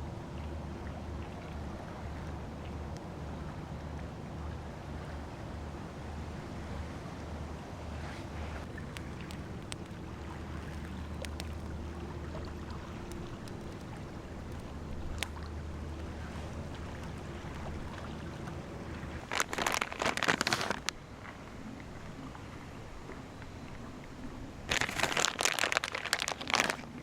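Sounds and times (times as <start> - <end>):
waves: 0.0 - 27.0
wind: 0.0 - 27.0
faint clicks: 8.9 - 16.1
loud rustling and crinkling: 19.1 - 21.0, 24.7 - 27.0.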